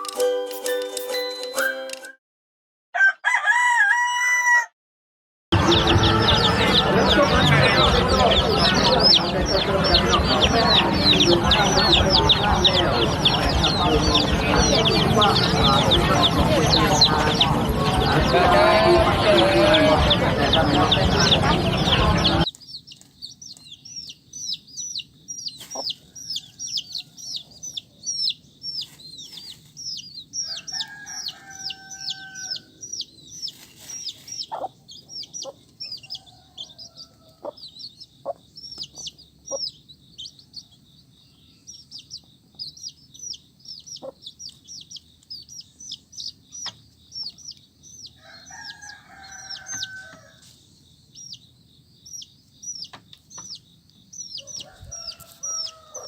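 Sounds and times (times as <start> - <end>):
adult chicken call: 3.0 - 4.7
baby chicks peeping: 5.5 - 56.0.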